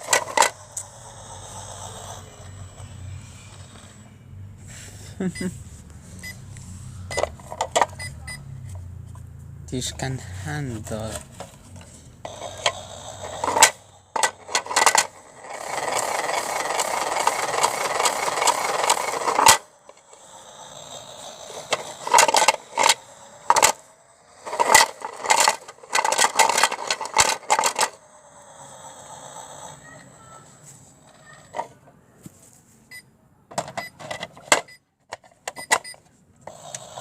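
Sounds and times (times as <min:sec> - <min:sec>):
toy washing machine clicks: 0:12.3 - 0:19.6, 0:21.5 - 0:23.8, 0:24.4 - 0:28.0.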